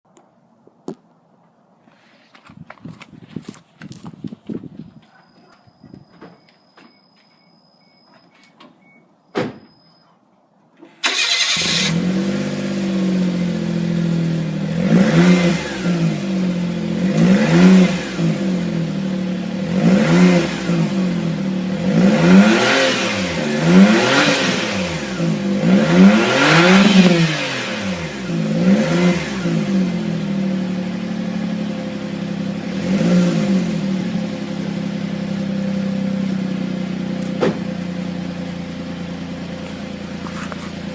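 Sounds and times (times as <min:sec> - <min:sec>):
faint electronic beep: 0:05.1 - 0:10.3
car engine starting and revving: 0:11.0 - 0:40.9.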